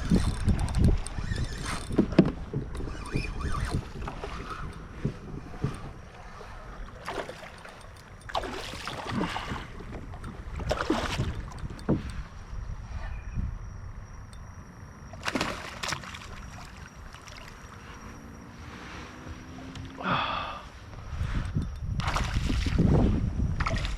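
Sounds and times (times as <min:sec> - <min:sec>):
wind rumble on microphone: 0:00.0 - 0:15.2, 0:16.2 - 0:23.9
knocks and bumps on kayak: 0:01.9 - 0:02.8, 0:08.6 - 0:12.2.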